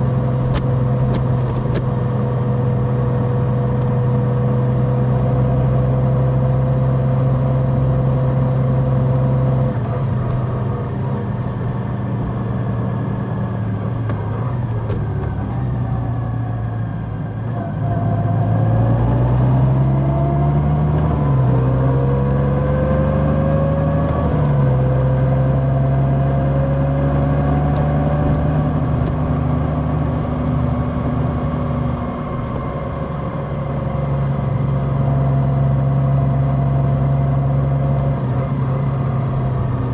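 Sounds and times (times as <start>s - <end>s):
motorcycle engine running: 0.0s - 17.6s, 27.6s - 39.9s.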